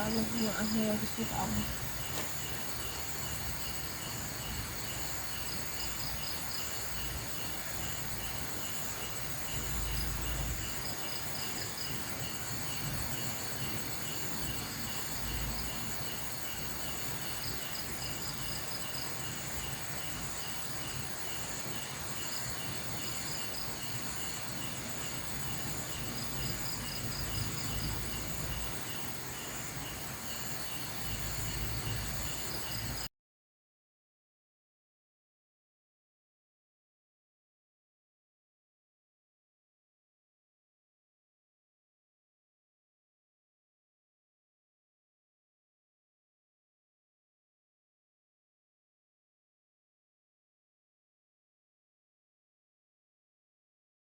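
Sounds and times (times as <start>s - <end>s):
constant hiss: 0.0s - 33.1s
cricket chirp groups: 0.0s - 33.1s
insect trill pulsing: 0.0s - 33.1s.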